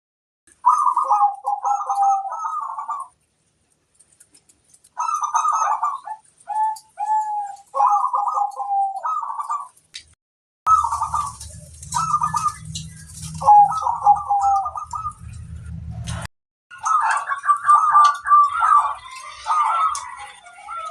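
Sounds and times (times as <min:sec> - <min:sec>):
dove cooing: 0:00.6 - 0:03.2, 0:04.9 - 0:09.8, 0:10.7 - 0:15.5, 0:16.7 - 0:20.9
low hum: 0:10.7 - 0:16.3.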